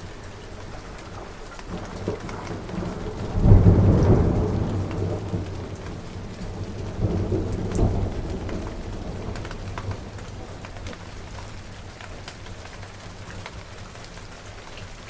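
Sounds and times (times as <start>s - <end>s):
rain falling: 0.0s - 15.0s
thunder rumbling: 0.8s - 11.5s.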